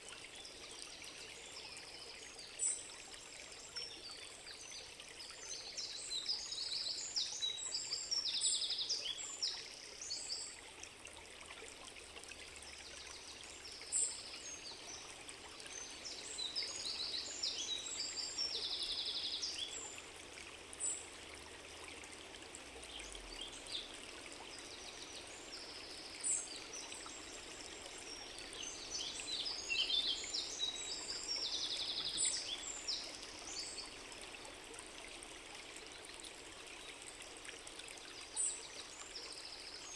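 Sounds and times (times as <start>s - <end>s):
stream flowing: 0.0s - 39.9s
songbirds chirping: 12.6s - 39.9s.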